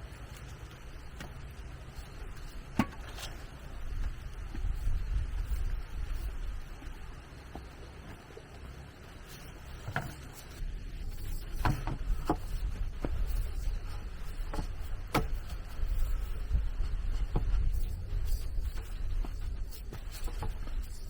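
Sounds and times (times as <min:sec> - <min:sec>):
low rumble: 0:10.6 - 0:21.0.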